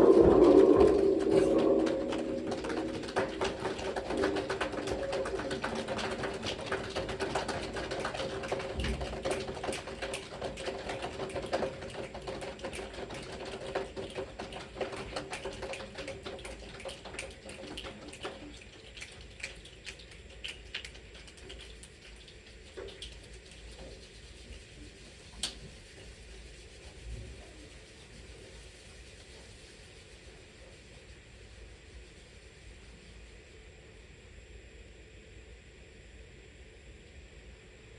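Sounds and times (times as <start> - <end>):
children snapping and tapping: 2.5 - 23.2.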